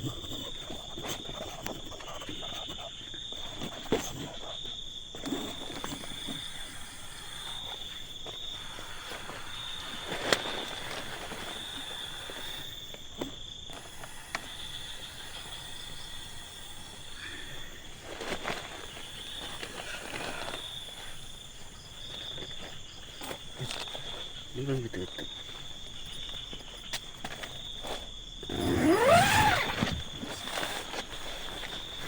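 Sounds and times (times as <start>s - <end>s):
night insects chirring: 0.0s - 32.0s
rustling movement: 7.2s - 13.2s, 16.8s - 24.5s, 25.3s - 32.0s.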